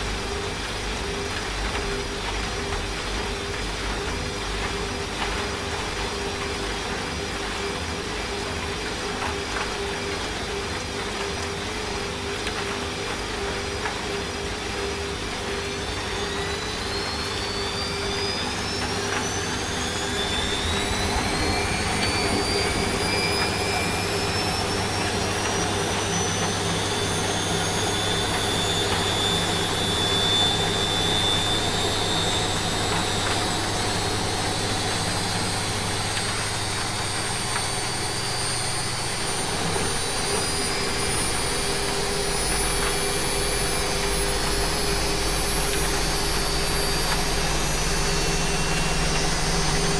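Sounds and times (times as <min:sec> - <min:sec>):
washing machine spinning: 0:00.0 - 0:49.9
rain hissing: 0:09.9 - 0:49.9.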